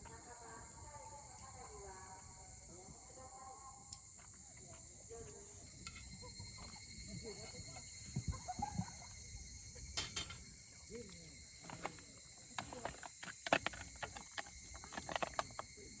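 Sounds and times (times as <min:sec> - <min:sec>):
insects chorus: 0:00.0 - 0:16.0
clicks and knocks of handling: 0:11.6 - 0:15.8.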